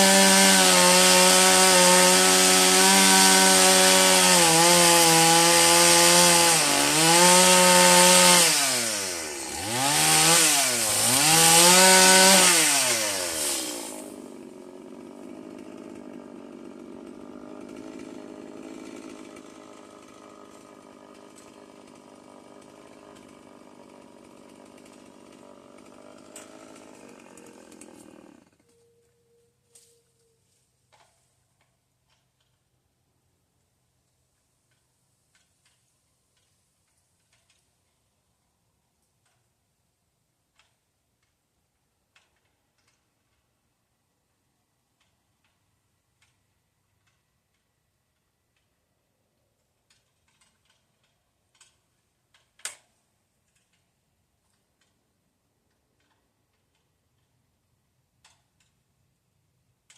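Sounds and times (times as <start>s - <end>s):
chainsaw running: 0.0s - 28.8s.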